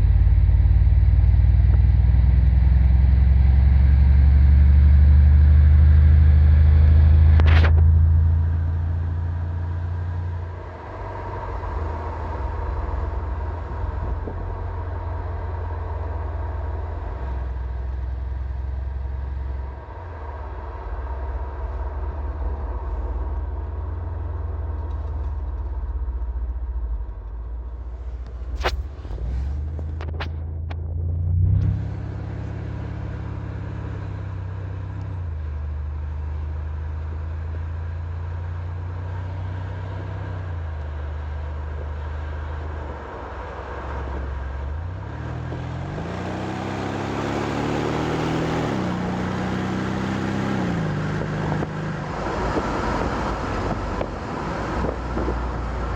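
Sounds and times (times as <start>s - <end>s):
car engine deep rumble: 0.0s - 55.9s
exhaust cracks: 6.5s - 34.2s, 39.9s - 55.9s.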